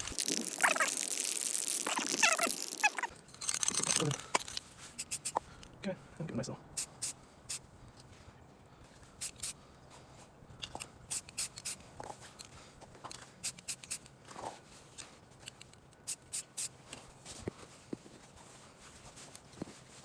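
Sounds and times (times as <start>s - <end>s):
spray paint can hissing bursts: 0.0s - 3.1s, 5.0s - 5.4s, 6.8s - 7.6s, 9.2s - 9.6s, 11.1s - 11.8s, 13.4s - 14.0s, 16.1s - 16.8s.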